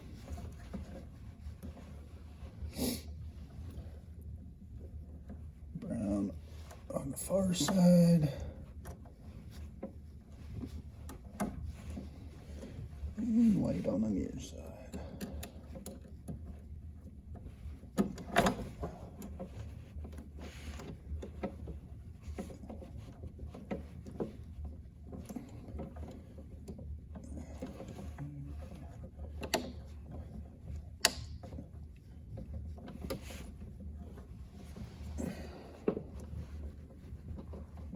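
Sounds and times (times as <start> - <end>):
low steady hum: 0.0 - 37.9
small clicks of plastic and metal: 14.9 - 16.7, 17.3 - 34.8.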